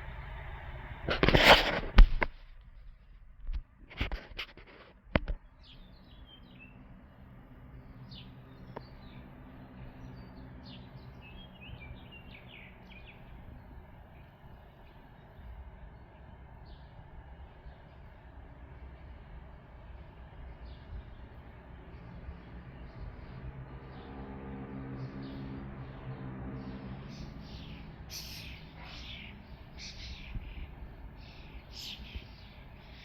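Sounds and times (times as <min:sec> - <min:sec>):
outdoor background noise: 0:00.0 - 0:33.0
bumps and rustles: 0:01.1 - 0:05.5
small birds chirping: 0:05.3 - 0:33.0.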